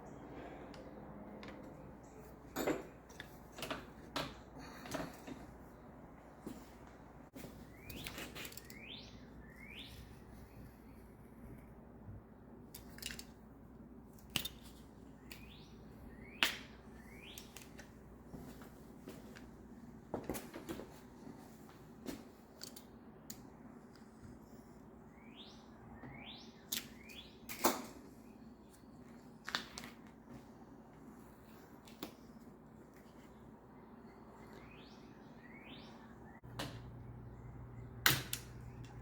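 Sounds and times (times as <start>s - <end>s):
bird chirps: 7.6s - 10.8s, 15.2s - 17.6s, 25.1s - 27.5s, 33.8s - 36.4s
hand tools clicking on bicycle parts: 12.7s - 13.4s.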